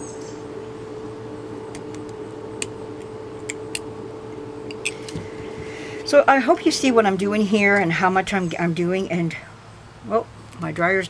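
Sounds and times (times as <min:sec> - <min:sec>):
rotary tool whining: 0:00.0 - 0:07.0.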